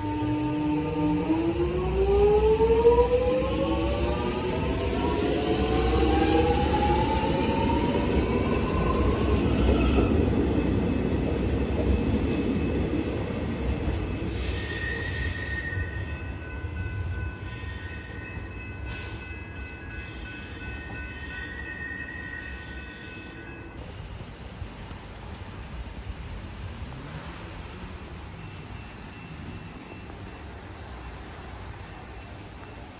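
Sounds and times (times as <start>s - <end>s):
train wheel rumble: 0.0s - 32.9s
high-pitched wheel squeal: 14.2s - 16.1s.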